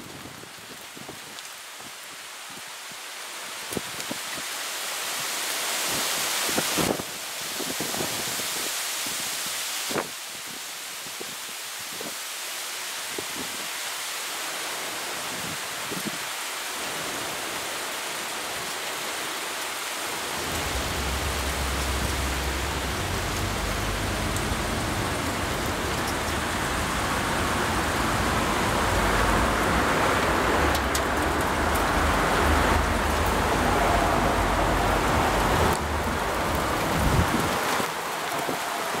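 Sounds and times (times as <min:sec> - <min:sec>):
rain hissing: 0:12.4 - 0:39.0
rolling thunder: 0:20.4 - 0:25.8.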